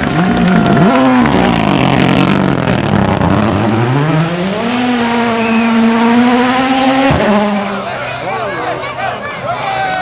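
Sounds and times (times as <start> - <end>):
rally car engine revving: 0.0 - 8.0.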